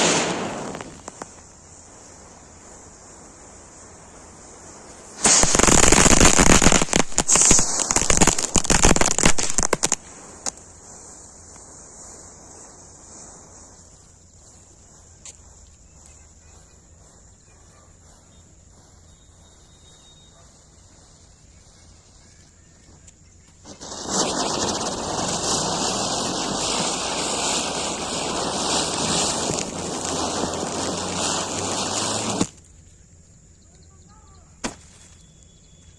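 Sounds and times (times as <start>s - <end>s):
firecrackers cracking: 0.0s - 17.2s, 23.4s - 32.7s
firecracker pop: 34.6s - 35.0s.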